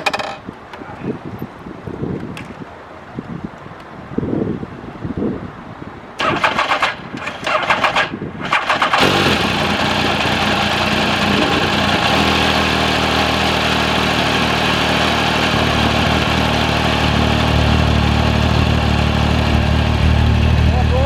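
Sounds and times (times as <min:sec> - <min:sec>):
motorcycle engine cranking on starter: 0:06.2 - 0:12.0
motorcycle engine idling: 0:09.0 - 0:21.0.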